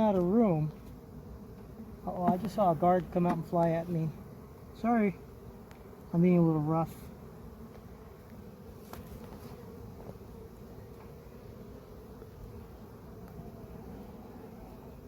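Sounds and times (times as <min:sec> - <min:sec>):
honeybees humming: 0:00.0 - 0:15.0.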